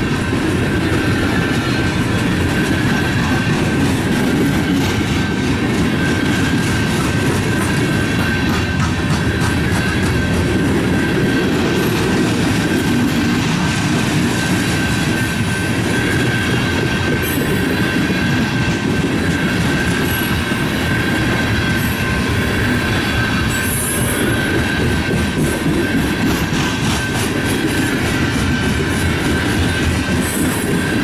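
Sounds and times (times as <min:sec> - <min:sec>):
train wheels rumbling on rail: 0:00.0 - 0:31.0
wheel squeals: 0:13.4 - 0:31.0.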